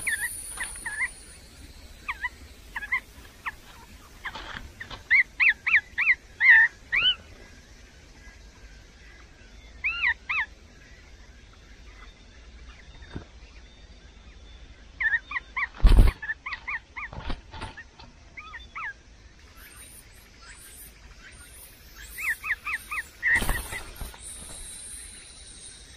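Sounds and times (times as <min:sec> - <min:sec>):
nestling bird chirping: 0:00.0 - 0:25.9.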